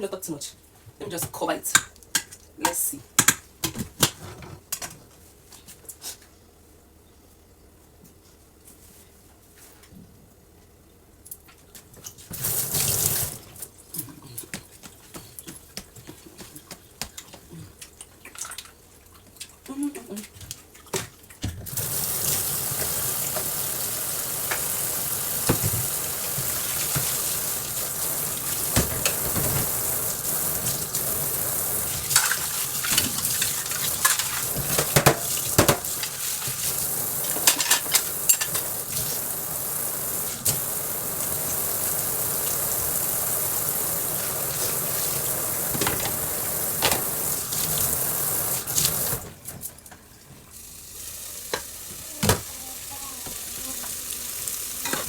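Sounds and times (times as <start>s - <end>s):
soup sizzling in a pot: 21.7s - 49.3s, 50.5s - 55.0s.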